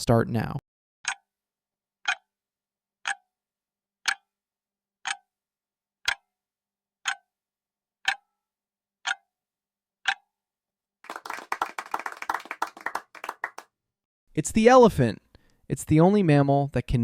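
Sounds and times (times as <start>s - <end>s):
clock ticking: 1.0s - 1.3s, 2.0s - 2.4s, 3.0s - 3.3s, 4.0s - 4.4s, 5.0s - 5.3s, 6.0s - 6.3s, 7.0s - 7.3s, 8.0s - 8.3s, 9.0s - 9.2s, 10.0s - 10.3s.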